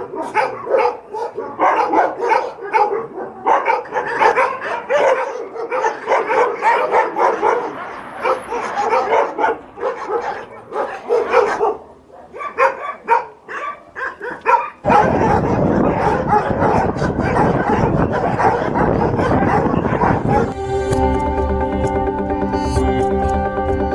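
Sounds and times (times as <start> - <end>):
dogs barking and yelping: 0.0 - 20.6
music with sustained tones: 20.2 - 23.9.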